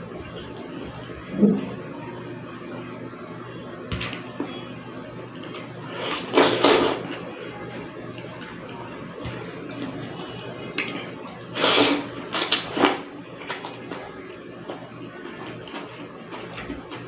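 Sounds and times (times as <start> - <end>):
close-up eating sounds: 5.4 - 17.0.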